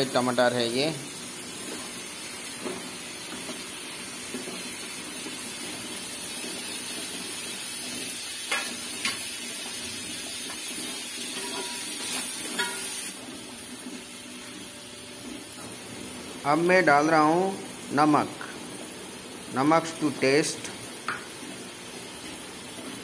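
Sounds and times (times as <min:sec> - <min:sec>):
food sizzling in oil: 0:00.0 - 0:23.0
ladle stirring against pot: 0:11.3 - 0:13.0.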